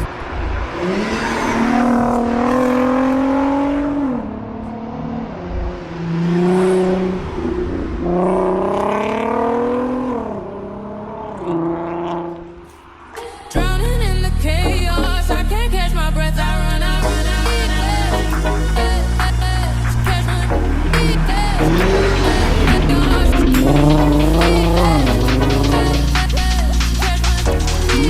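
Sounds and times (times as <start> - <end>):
car engine revving: 0.0 - 13.3, 16.8 - 28.0
music: 13.2 - 28.0.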